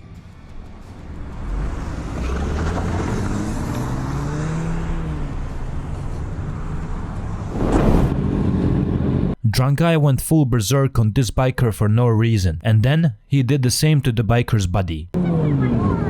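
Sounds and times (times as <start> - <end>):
road and wind noise: 0.0 - 9.4, 15.2 - 16.0
short rush of noise: 7.4 - 8.6
vehicle engine running: 15.2 - 16.0.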